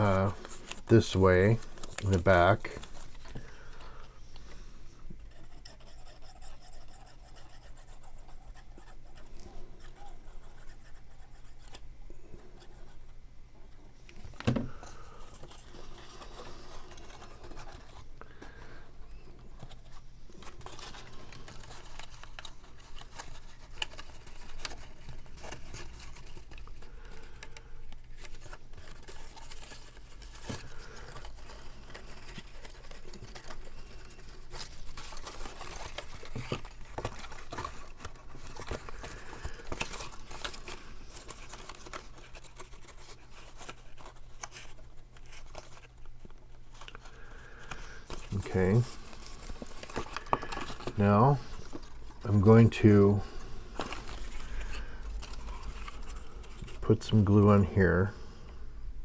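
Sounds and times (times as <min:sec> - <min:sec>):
cardstock rustling and tapping: 0:19.5 - 0:52.1.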